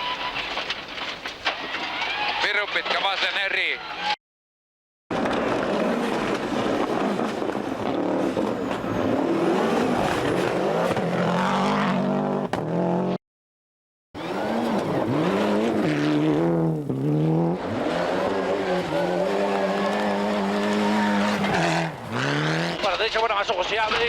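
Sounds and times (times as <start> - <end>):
tyre and road noise: 0.0 - 4.1, 5.1 - 13.2, 14.2 - 24.0
rally car engine revving: 5.1 - 13.2, 14.2 - 23.2.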